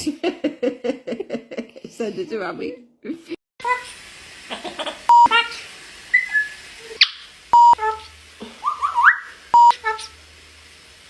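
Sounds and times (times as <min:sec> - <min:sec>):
parrot calling and whistling: 0:04.7 - 0:10.2
short flat beeps: 0:09.6 - 0:09.8.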